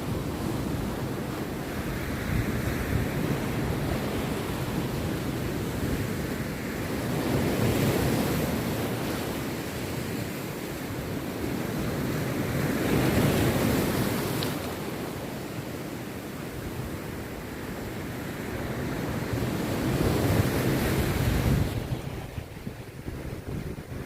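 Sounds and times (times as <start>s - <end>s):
sea surf breaking on beach: 0.0s - 24.0s.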